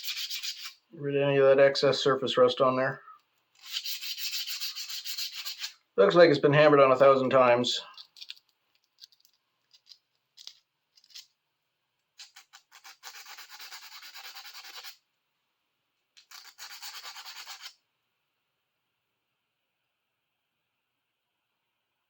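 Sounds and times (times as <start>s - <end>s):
sandpaper rubbing on steel: 0.0s - 0.8s, 3.6s - 5.8s, 12.2s - 15.0s, 16.3s - 17.8s.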